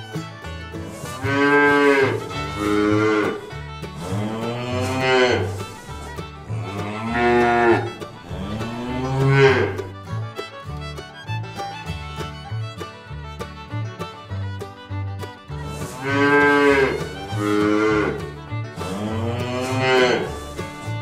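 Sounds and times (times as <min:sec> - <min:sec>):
fiddle music: 0:00.0 - 0:21.0
calves bawling: 0:00.7 - 0:10.2, 0:15.6 - 0:21.0.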